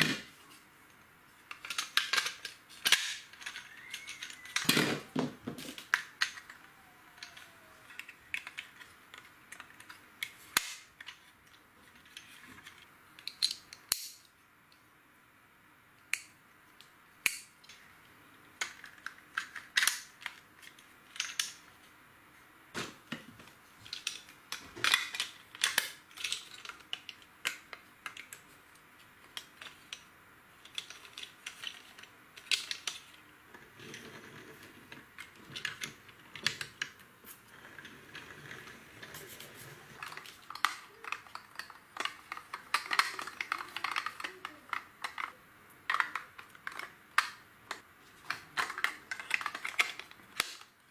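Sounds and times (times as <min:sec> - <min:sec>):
plastic toy bricks clicking: 0:01.5 - 0:14.3, 0:18.5 - 0:21.6, 0:23.8 - 0:37.0, 0:40.0 - 0:50.9.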